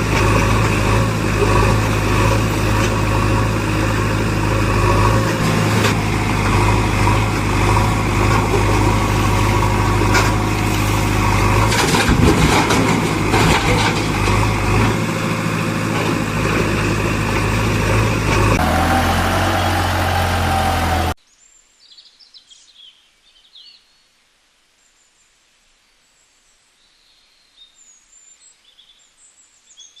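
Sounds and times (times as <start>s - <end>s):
diesel engine running: 0.0s - 21.2s.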